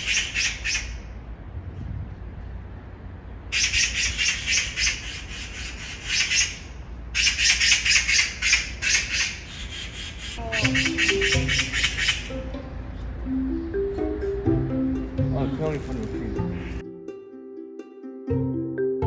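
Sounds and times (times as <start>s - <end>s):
magpie rattling chatter: 0.0s - 1.1s, 3.5s - 12.4s.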